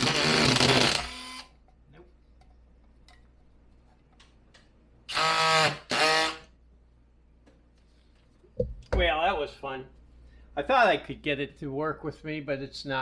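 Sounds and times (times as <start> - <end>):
screw gun motor whine: 0.0 - 1.6, 5.1 - 6.5.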